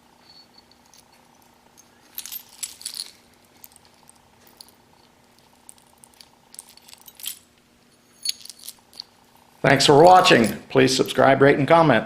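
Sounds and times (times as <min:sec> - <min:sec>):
faint steady hum: 0:00.0 - 0:12.0
metal piston pieces clinking: 0:00.2 - 0:09.3, 0:10.0 - 0:10.6.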